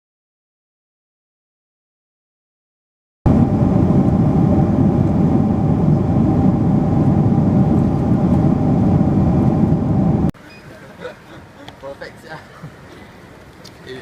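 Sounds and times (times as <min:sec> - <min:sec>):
jet airliner engine noise: 0:03.3 - 0:10.4.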